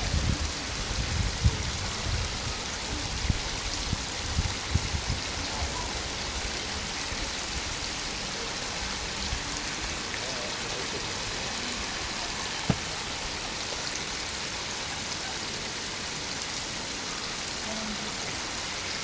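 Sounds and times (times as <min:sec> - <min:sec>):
spring water rushing: 0:00.0 - 0:19.0.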